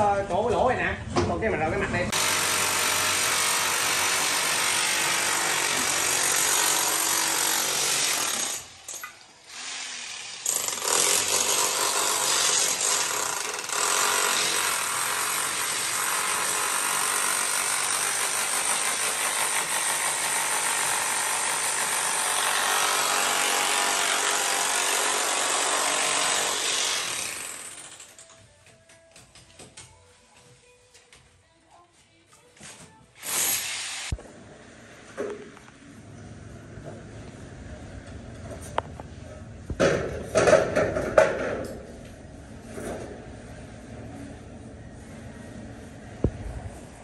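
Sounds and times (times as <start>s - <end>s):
power tool running: 2.2s - 8.6s.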